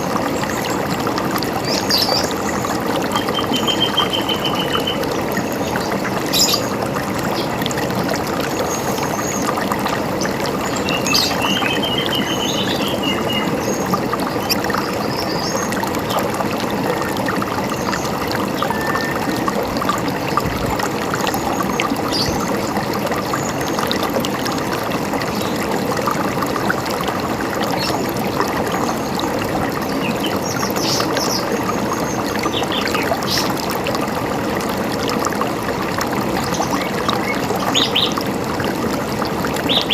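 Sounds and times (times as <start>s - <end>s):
river water gurgling: 0.0s - 39.9s
birds chirping and whistling: 3.2s - 5.0s.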